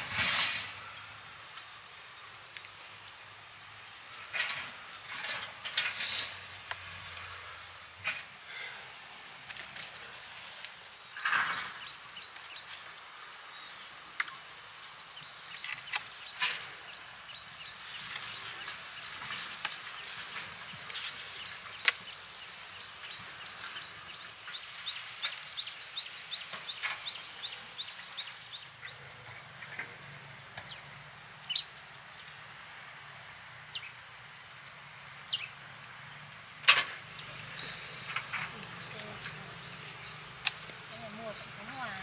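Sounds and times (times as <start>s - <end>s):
birds calling: 0.0s - 32.6s, 33.4s - 42.0s
faint high hiss: 0.0s - 42.0s
sharp snaps and clicks: 13.8s - 16.6s, 38.0s - 40.9s.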